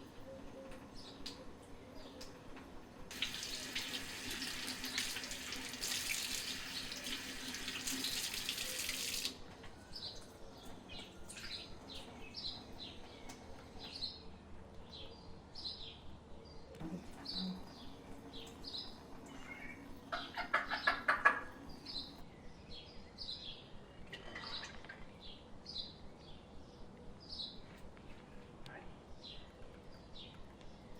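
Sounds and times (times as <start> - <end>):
water running from tap: 3.1 - 9.4
small birds chirping: 9.9 - 30.9.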